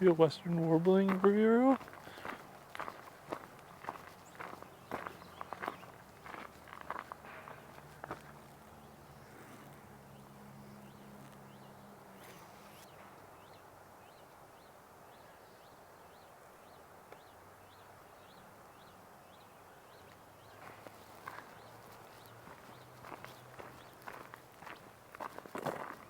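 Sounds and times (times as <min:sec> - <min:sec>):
small bird chirping: 0:02.8 - 0:07.1.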